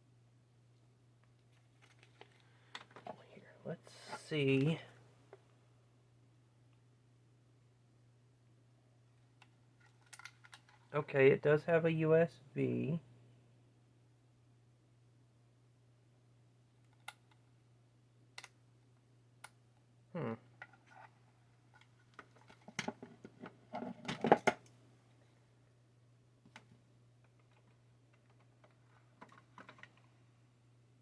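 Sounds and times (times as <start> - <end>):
plastic parts clicking and clattering: 1.5 - 3.1, 9.4 - 10.9, 21.7 - 24.7, 26.5 - 30.2.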